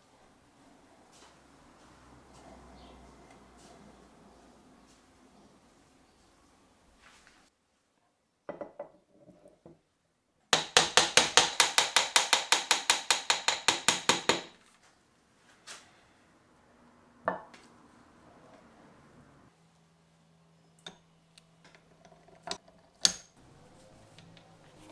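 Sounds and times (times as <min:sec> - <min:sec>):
hand tool knocking on metal: 0:10.6 - 0:14.6.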